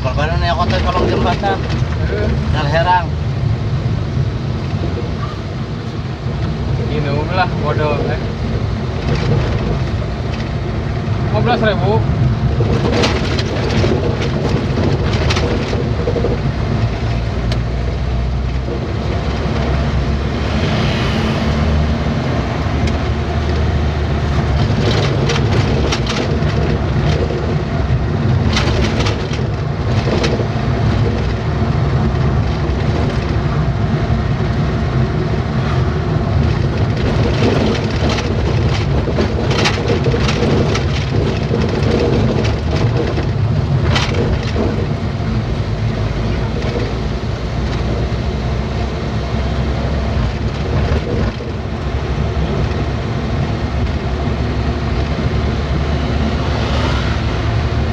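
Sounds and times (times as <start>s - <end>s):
truck engine and road rumble: 0.0s - 57.9s
short rattles and knocks: 0.2s - 3.0s, 6.2s - 20.2s, 22.6s - 33.8s, 36.2s - 48.2s, 50.0s - 56.1s.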